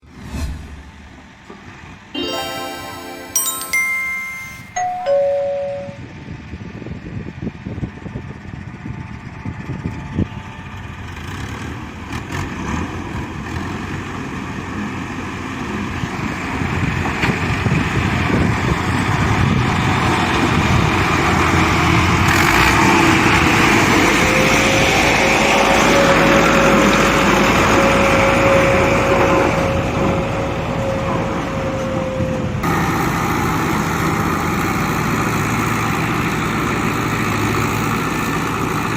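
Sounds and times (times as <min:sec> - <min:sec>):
two-note chime: 0:02.2 - 0:06.1.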